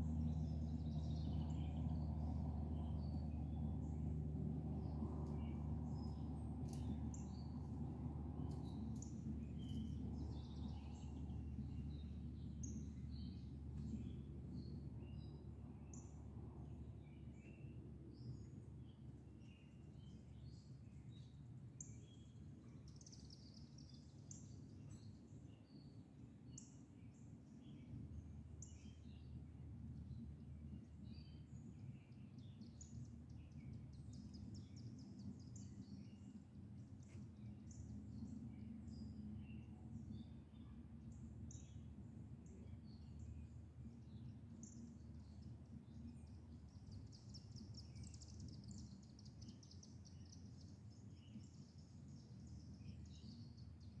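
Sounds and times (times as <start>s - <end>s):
low background rumble: 0.0s - 54.0s
songbirds chirping: 0.0s - 54.0s.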